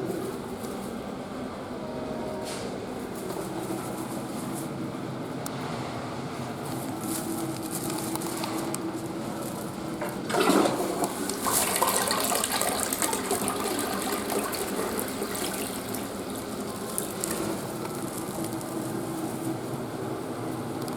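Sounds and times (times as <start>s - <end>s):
toilet flushing: 8.3s - 19.2s
water running: 9.1s - 19.2s.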